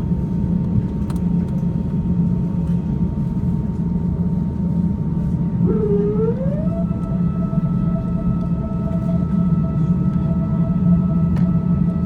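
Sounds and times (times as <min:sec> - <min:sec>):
aircraft cabin rumble: 0:00.0 - 0:12.0
rising whine: 0:05.6 - 0:12.0.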